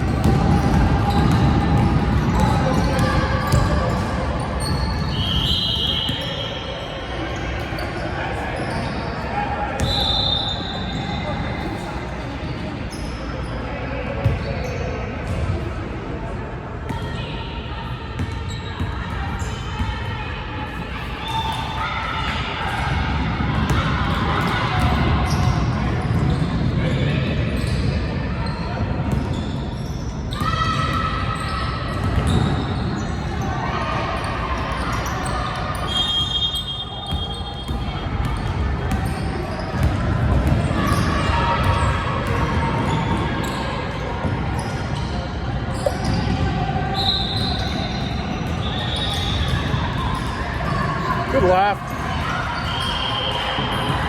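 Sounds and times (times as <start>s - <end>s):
basketball bouncing on gym floor: 0.0s - 5.1s, 37.1s - 43.2s
background chatter: 0.0s - 54.0s
crowd voices in large hall: 0.0s - 54.0s.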